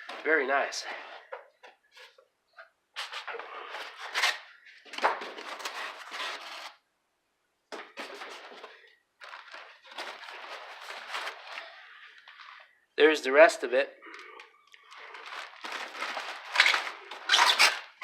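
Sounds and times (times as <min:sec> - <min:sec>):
packing material rustling and scraping: 0:03.0 - 0:06.8, 0:07.8 - 0:12.7, 0:14.8 - 0:18.0.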